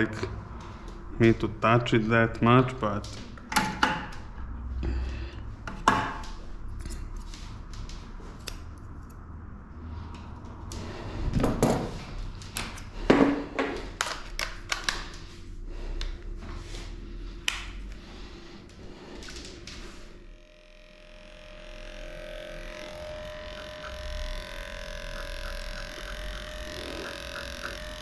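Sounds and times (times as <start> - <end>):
scissors snipping fur: 8.3 - 9.2, 23.6 - 28.0.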